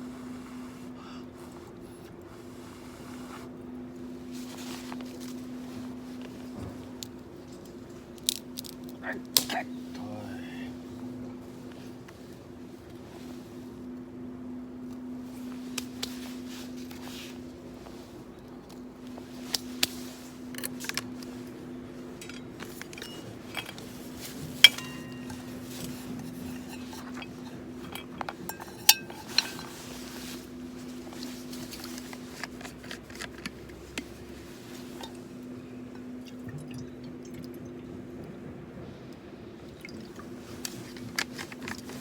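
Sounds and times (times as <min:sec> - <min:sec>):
steady low hum: 0:00.0 - 0:42.0
metal cookware clinking: 0:22.2 - 0:29.9
sharp ringing clanks: 0:24.6 - 0:25.9.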